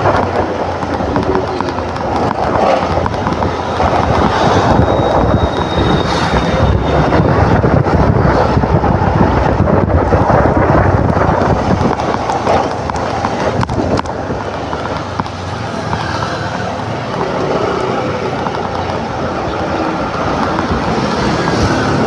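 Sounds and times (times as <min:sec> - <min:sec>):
wind buffeting microphone: 0:00.0 - 0:22.0
motor scooter engine: 0:10.7 - 0:22.0.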